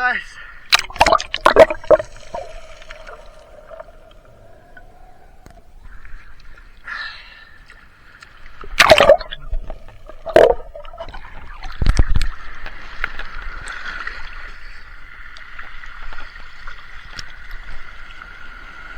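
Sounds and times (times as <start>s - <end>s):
loud water bursts: 0.7s - 4.0s, 8.8s - 11.0s
hiss of water: 16.2s - 18.9s.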